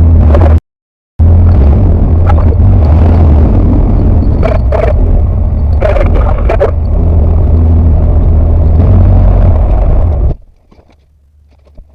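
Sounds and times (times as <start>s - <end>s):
aircraft engine drone in cockpit: 1.2s - 10.5s.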